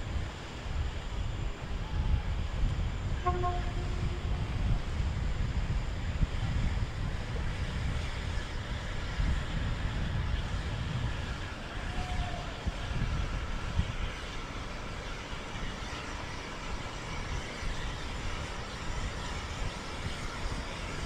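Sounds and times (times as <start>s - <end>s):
wind buffeting microphone: 0.0s - 15.9s.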